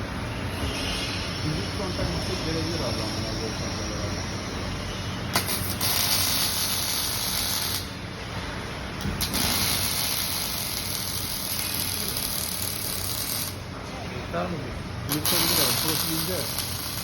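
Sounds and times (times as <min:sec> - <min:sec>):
steady machine hum: 0:00.0 - 0:17.0
welding arc crackling hiss: 0:05.3 - 0:08.0, 0:09.0 - 0:13.6, 0:15.1 - 0:17.0.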